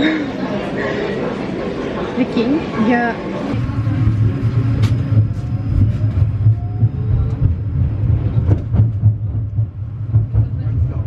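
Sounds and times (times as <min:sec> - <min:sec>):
vehicle rumble from inside: 0:03.5 - 0:11.0.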